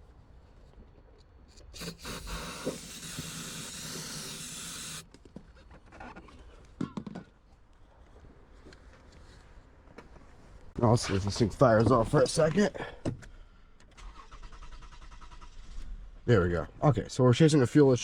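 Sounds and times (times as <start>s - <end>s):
aerosol spray hissing: 1.8s - 5.0s.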